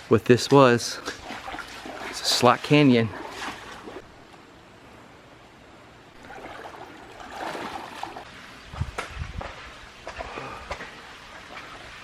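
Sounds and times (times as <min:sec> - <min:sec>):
creek water rushing: 0:00.9 - 0:04.2, 0:06.2 - 0:08.8.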